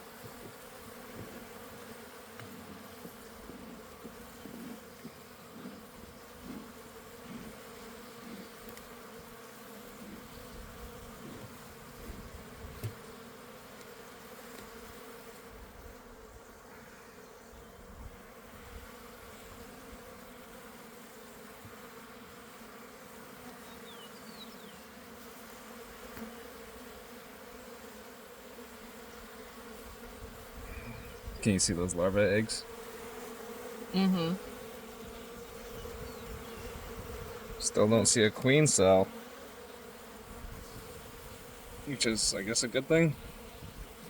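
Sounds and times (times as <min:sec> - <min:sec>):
honeybees buzzing: 0:00.0 - 0:44.0.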